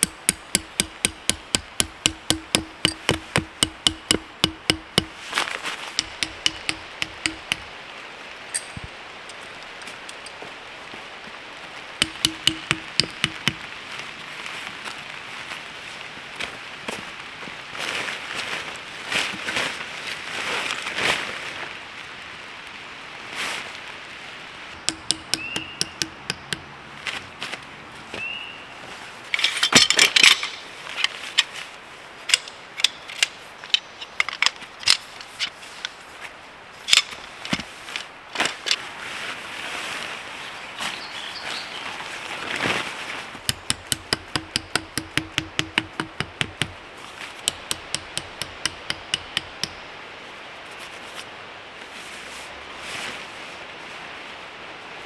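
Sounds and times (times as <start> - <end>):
hammering knocks: 0.0 - 5.2, 6.0 - 7.7, 12.0 - 13.7, 24.8 - 26.8, 43.5 - 46.8, 47.4 - 49.9.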